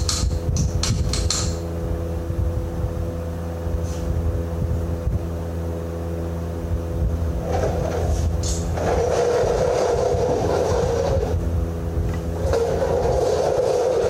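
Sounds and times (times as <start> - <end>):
sharp metallic clicks: 0.0 - 1.6
low engine drone: 0.0 - 14.0.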